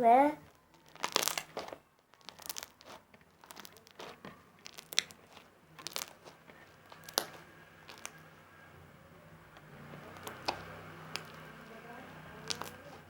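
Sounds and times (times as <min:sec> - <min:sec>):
slime crackles and clicks: 0:00.4 - 0:08.3, 0:10.0 - 0:11.7, 0:12.4 - 0:13.0
slime squeezed by hand: 0:00.7 - 0:08.3, 0:12.4 - 0:13.0
slime pops: 0:00.8 - 0:08.2, 0:10.2 - 0:11.5, 0:12.4 - 0:13.0.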